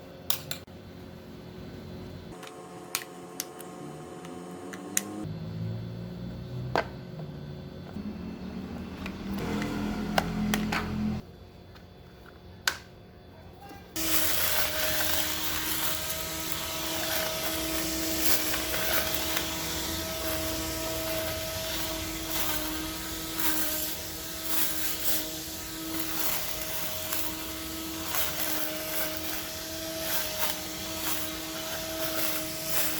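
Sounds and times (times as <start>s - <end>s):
electric motor whirring: 13.9s - 32.9s.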